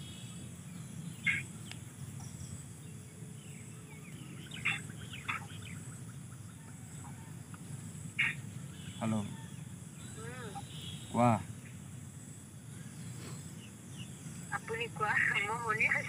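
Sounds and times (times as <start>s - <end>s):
bird chirps: 0.0s - 16.0s
low outdoor hum: 0.0s - 16.0s.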